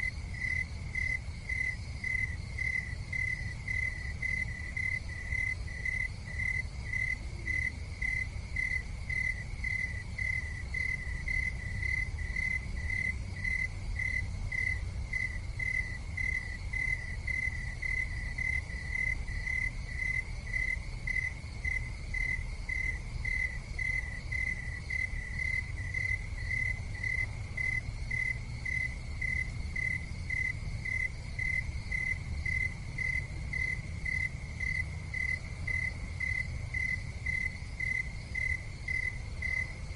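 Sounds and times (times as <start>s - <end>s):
constant low rumble: 0.0s - 39.9s
cricket chirping: 0.0s - 39.9s.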